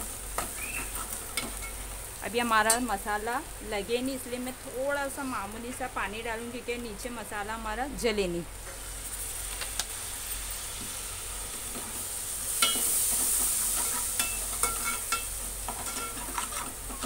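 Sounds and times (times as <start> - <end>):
masala sizzling in oil: 0.0 - 17.0
steel spoon stirring and scraping: 13.4 - 17.0.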